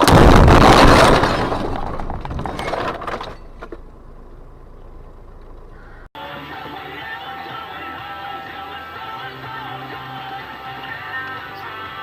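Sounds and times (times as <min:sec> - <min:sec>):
car crash impact: 0:00.0 - 0:03.9
debris knocking: 0:00.0 - 0:04.0
car engine running low: 0:03.3 - 0:06.0
music: 0:06.2 - 0:12.0.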